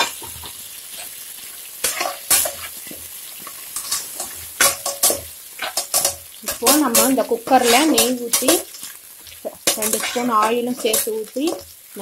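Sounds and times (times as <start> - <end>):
onions sizzling in oil: 0.0 - 12.0
metal spatula scraping pot: 1.8 - 3.0, 3.7 - 11.8.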